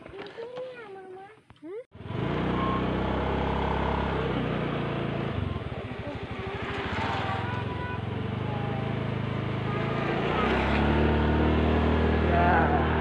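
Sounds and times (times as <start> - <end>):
motorcycle engine running: 2.0 - 13.0
road and wind noise: 2.0 - 13.0.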